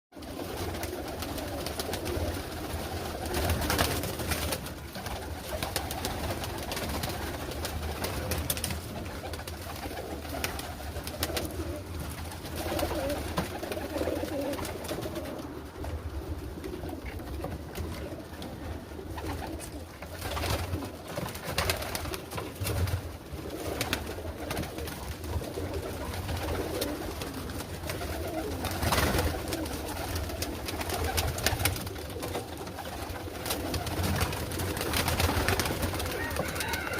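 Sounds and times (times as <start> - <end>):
pigeons cooing: 0.2 - 36.9.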